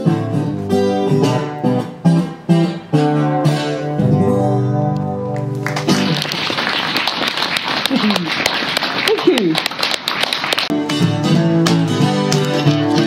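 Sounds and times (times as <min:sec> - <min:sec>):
guitar strumming chords: 0:00.0 - 0:06.2, 0:10.7 - 0:13.0.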